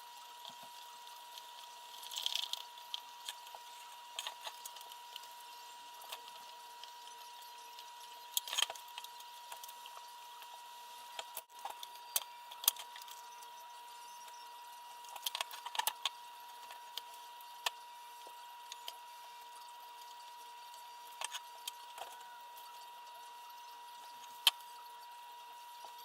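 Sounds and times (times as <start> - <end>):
small parts clicking and tapping: 0.4 - 10.5, 11.1 - 13.5, 15.0 - 19.0.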